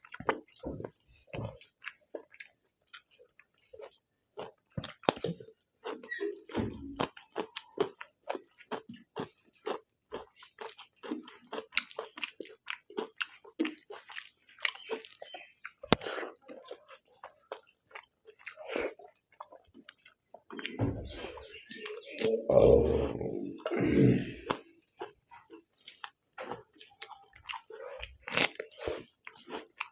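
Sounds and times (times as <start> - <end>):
chewing with wet smacks: 0.0 - 22.4, 23.6 - 29.9
person's voice: 22.2 - 24.4.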